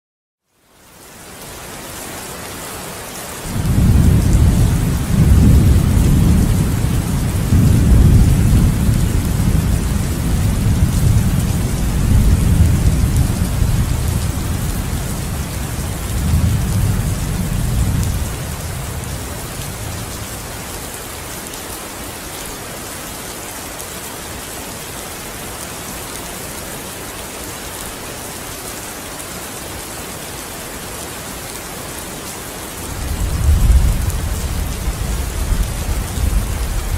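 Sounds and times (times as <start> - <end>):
steady rain falling: 0.4 - 36.9
thunder rumbling: 3.5 - 20.6, 32.9 - 36.9.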